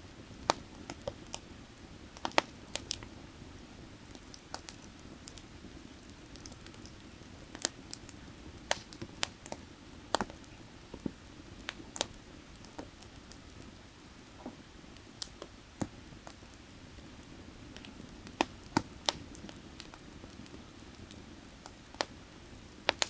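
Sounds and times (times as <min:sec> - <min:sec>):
firewood crackling and popping: 0:00.1 - 0:23.0.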